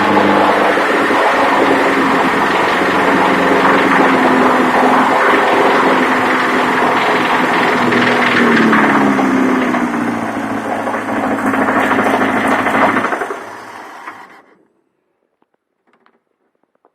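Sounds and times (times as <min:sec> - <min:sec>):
car engine knocking: 0:00.0 - 0:14.3
engine running down: 0:00.0 - 0:14.5.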